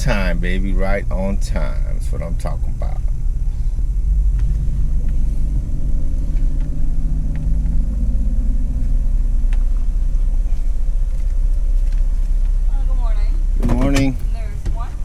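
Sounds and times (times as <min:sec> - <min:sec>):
car engine rumbling inside cabin: 0:00.0 - 0:15.0.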